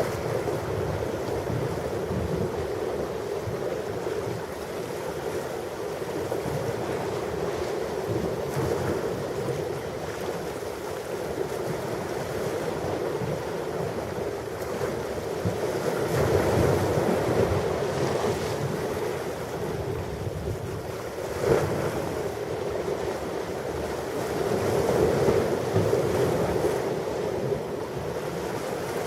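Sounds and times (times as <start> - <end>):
ocean waves washing onto shore: 0.0 - 29.0.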